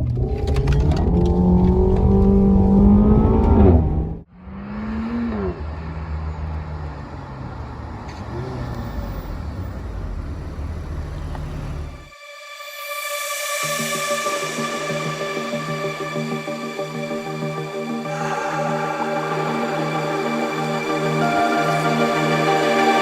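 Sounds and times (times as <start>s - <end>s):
car engine accelerating hard: 0.0s - 12.2s
road noise: 0.0s - 12.2s.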